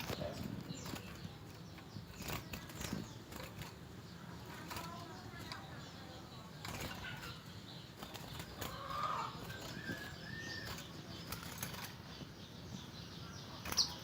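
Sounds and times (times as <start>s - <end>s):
bird wings fluttering: 0.0s - 5.7s, 6.6s - 12.0s.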